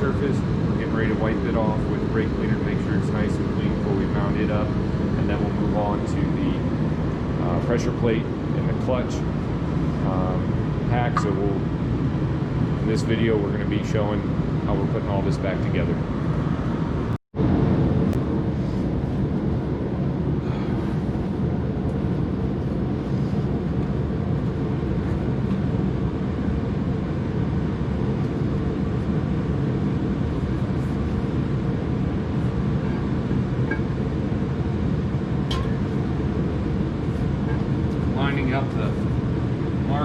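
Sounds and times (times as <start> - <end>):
fan or blower running: 0.0 - 40.0.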